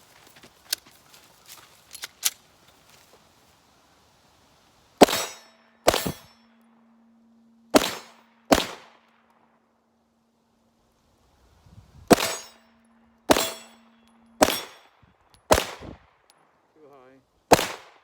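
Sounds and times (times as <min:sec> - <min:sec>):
pistol shots: 0:05.0 - 0:06.4, 0:07.7 - 0:09.0, 0:12.1 - 0:12.6, 0:13.3 - 0:13.8, 0:14.4 - 0:14.9, 0:15.5 - 0:16.1, 0:17.5 - 0:18.0
steel targets ringing: 0:05.0 - 0:08.5, 0:12.1 - 0:15.0.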